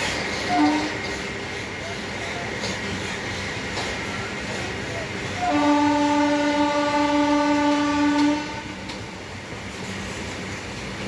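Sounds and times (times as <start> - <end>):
train running noise: 0.0 - 11.0
locomotive horn blast: 0.5 - 1.0, 5.4 - 8.8.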